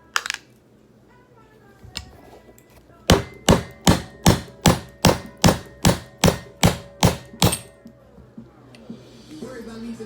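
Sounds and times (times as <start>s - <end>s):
hammer striking metal: 3.1s - 7.9s.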